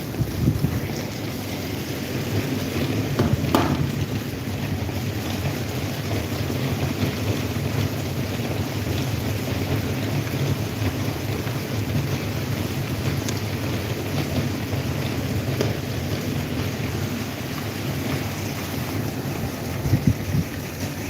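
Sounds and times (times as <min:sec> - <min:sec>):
airflow buffeting microphone: 0:00.0 - 0:05.0, 0:18.9 - 0:21.0
electric fan running: 0:00.0 - 0:21.0.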